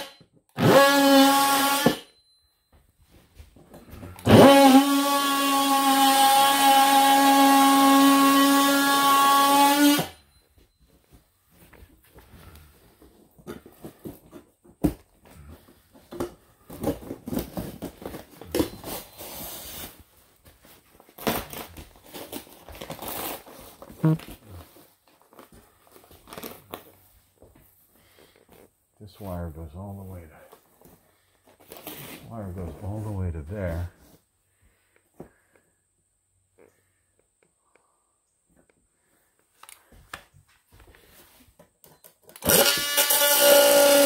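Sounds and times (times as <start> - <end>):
electric power saw running: 0.0 - 2.1, 4.2 - 10.2, 42.4 - 44.0.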